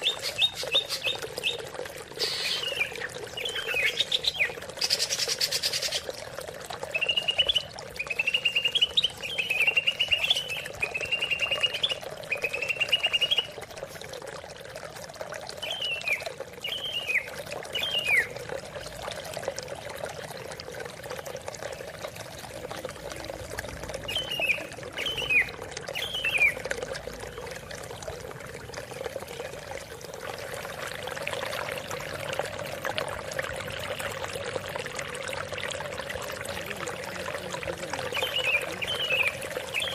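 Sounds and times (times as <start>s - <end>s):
bird singing trilled phrases: 0.0s - 6.1s, 6.9s - 13.6s, 15.6s - 18.4s, 24.0s - 26.7s, 37.4s - 39.9s
running water: 0.0s - 39.9s.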